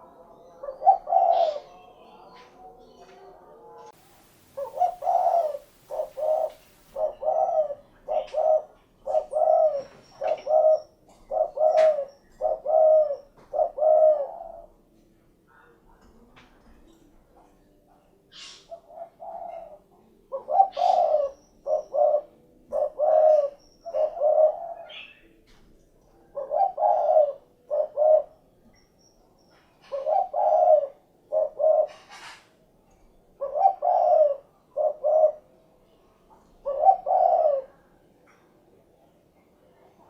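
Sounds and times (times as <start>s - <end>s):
dove cooing: 0.0s - 15.0s, 18.3s - 25.4s, 26.2s - 28.6s, 29.8s - 32.4s, 33.3s - 35.7s, 36.6s - 37.8s.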